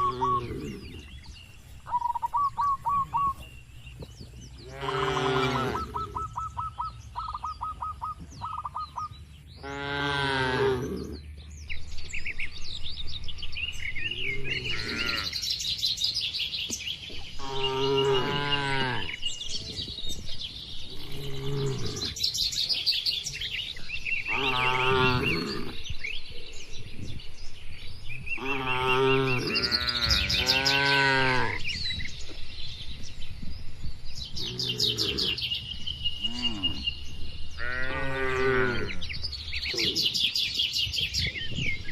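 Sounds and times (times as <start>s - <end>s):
birds chirping: 0.0s - 41.9s
cattle mooing: 4.6s - 6.2s, 9.6s - 11.1s, 24.3s - 25.8s.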